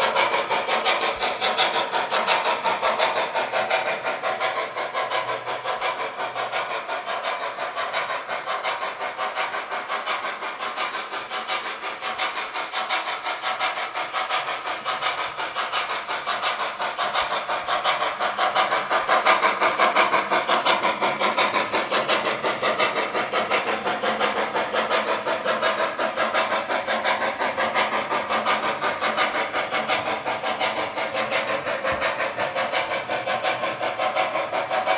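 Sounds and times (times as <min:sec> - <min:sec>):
steam exhaust chuffs with hiss: 0:00.0 - 0:34.9.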